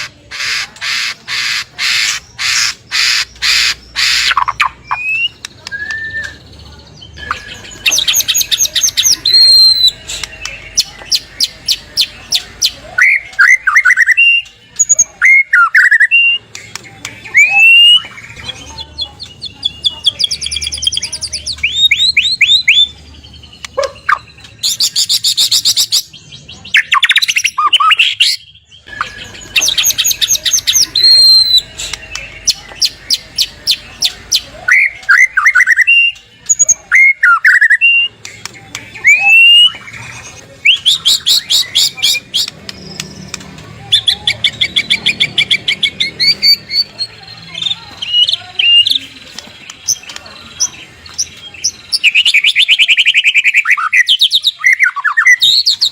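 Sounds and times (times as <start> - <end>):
bird song with rattling trills: 0.8 - 38.0.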